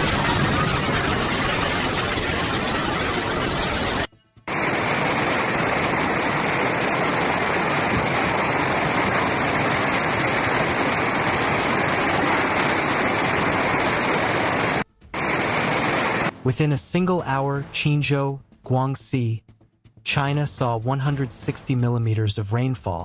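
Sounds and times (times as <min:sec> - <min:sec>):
torrential rain and rushing water: 0:00.0 - 0:16.3.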